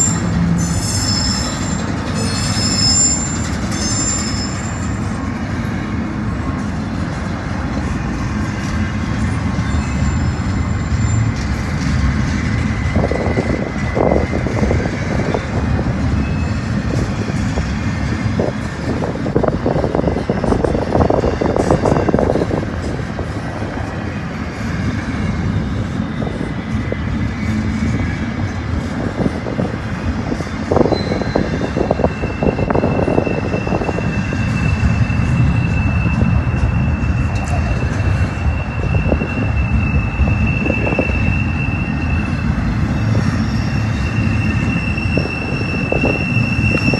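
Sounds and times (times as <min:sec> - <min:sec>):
high wheel squeal: 0:00.0 - 0:06.8, 0:07.7 - 0:46.9
freight train rolling past: 0:00.0 - 0:46.9
wind buffeting microphone: 0:10.3 - 0:46.9.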